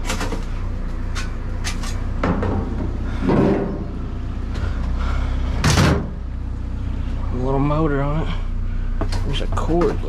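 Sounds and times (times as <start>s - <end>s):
junk clattering: 0.0s - 6.2s
steady low hum: 0.0s - 10.0s.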